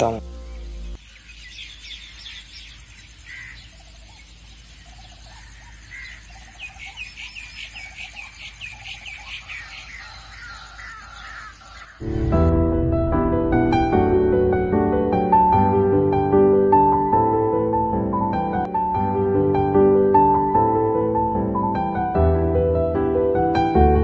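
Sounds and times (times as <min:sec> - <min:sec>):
birds chirping: 0:00.0 - 0:12.4.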